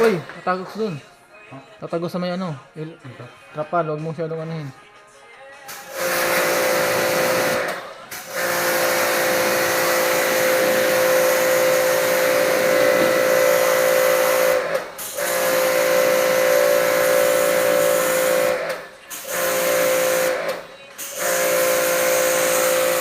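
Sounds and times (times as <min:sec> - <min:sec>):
pressure washer water jet hissing: 0:00.0 - 0:00.3, 0:05.7 - 0:23.0
washer motor humming: 0:06.1 - 0:14.8.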